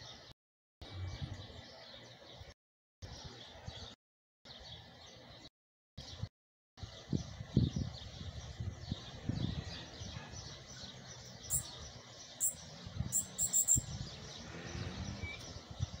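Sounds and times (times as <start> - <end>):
bird singing high thin notes: 11.4 - 11.8, 12.4 - 14.0, 14.8 - 15.6.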